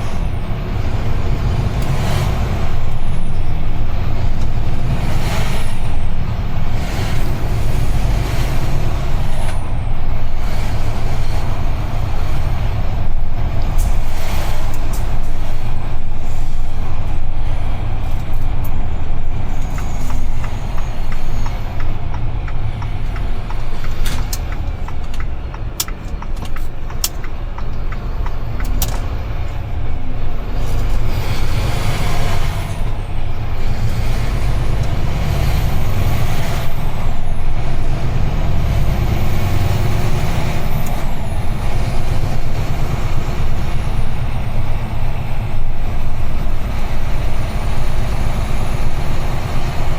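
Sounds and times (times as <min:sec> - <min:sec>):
truck engine and road rumble: 0:00.0 - 0:49.9
sharp clicks: 0:19.6 - 0:29.6.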